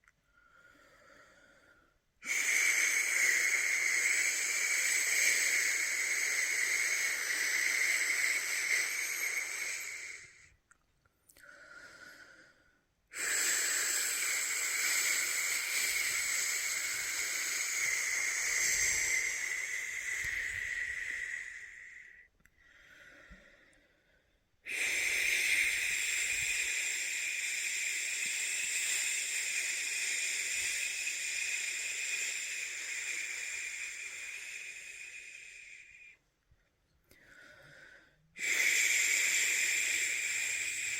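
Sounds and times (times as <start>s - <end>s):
person shushing: 13.2s - 22.2s.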